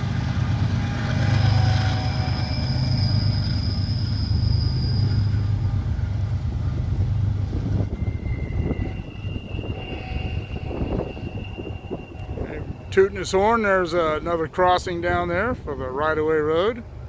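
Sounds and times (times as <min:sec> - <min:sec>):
distant train horn: 0:00.0 - 0:15.1
diesel locomotive rumble: 0:00.0 - 0:17.0.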